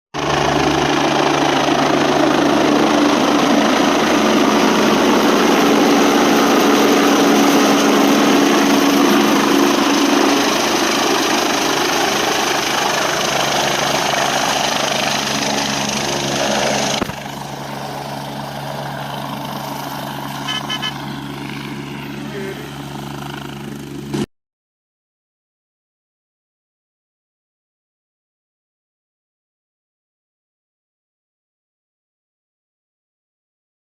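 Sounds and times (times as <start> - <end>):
helicopter rotor and turbine: 0.2 - 24.3.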